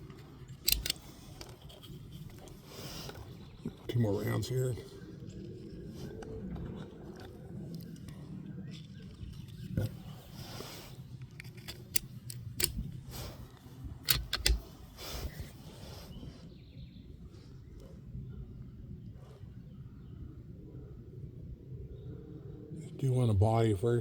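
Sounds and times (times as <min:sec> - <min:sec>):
rifle clicks and knocks: 0:00.0 - 0:03.2, 0:11.2 - 0:13.1, 0:14.0 - 0:15.0.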